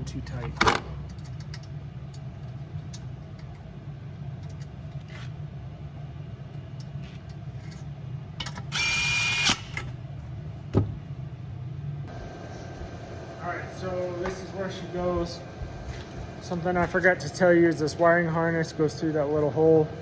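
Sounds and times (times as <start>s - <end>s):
steady low hum: 0.0s - 20.0s
cordless drill whining: 8.7s - 9.8s.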